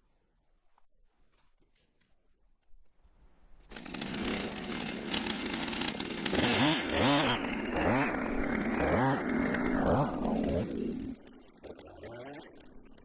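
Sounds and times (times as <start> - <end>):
chainsaw running at high revs: 3.7 - 13.0.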